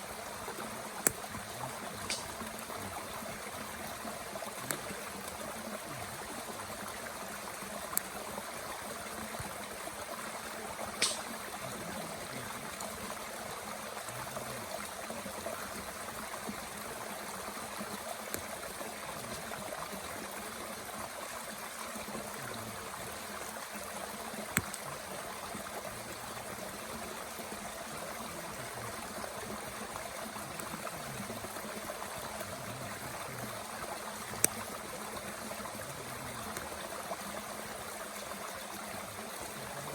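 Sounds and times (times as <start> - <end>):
mountain stream flowing: 0.0 - 39.9
wood popping in stove: 1.0 - 2.8, 11.0 - 11.3.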